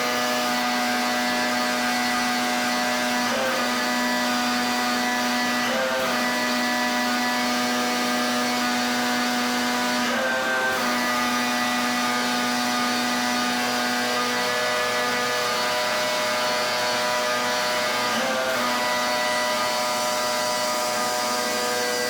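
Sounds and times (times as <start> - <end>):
high-pressure water jet hissing: 0.0 - 22.0
pressure washer motor hum: 0.0 - 22.0.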